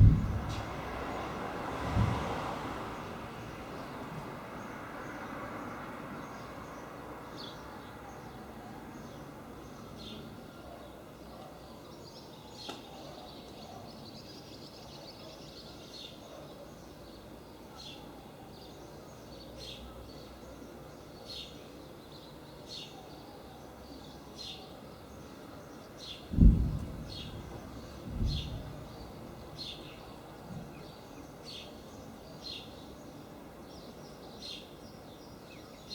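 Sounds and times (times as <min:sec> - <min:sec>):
outdoor background noise: 0:00.0 - 0:35.9.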